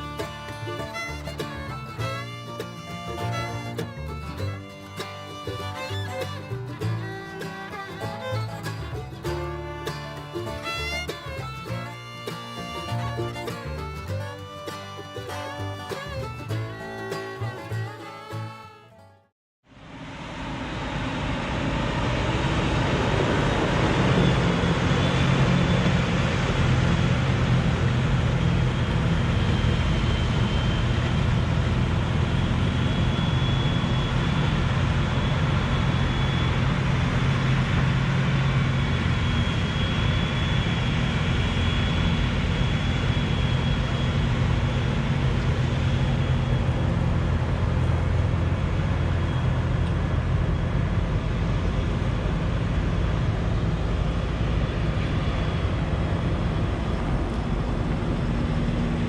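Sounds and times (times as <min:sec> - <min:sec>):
diesel engine running under load: 0:00.0 - 0:18.8, 0:19.7 - 0:59.0
faint high whine: 0:19.8 - 0:59.0.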